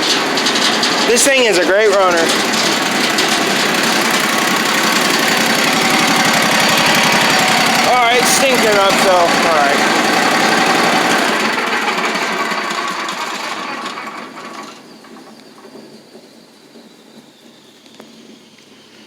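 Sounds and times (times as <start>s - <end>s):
small gasoline engine clattering: 0.0s - 16.1s.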